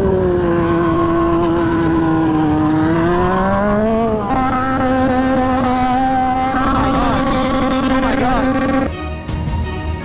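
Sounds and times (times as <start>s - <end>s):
motorcycle engine revving: 0.0s - 8.9s.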